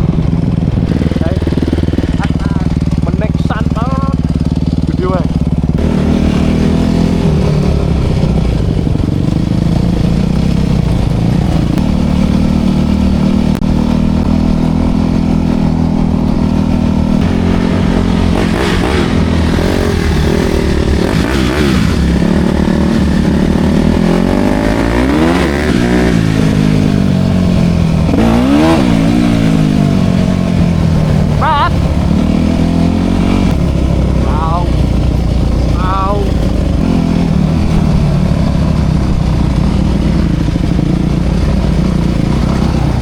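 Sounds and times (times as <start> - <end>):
dirt bike engine running: 0.0 - 43.0.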